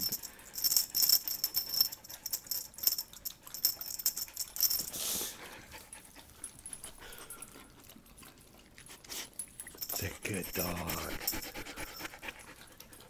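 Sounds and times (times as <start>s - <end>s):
metal tags jingling: 0.0s - 4.9s, 9.4s - 12.2s.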